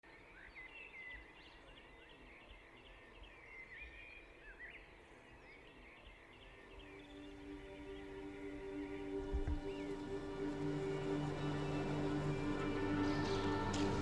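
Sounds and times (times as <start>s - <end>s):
small birds chirping: 0.1s - 14.0s.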